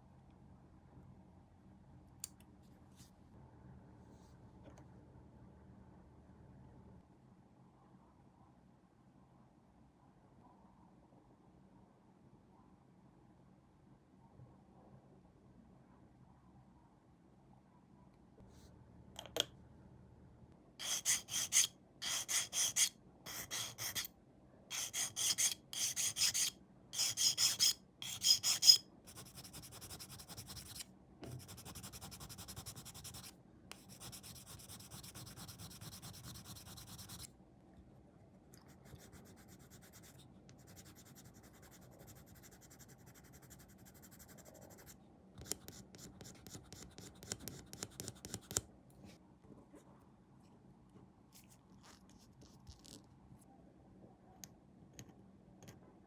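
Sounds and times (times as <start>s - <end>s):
filing strokes on plastic: 20.8s - 24.1s, 24.7s - 37.3s.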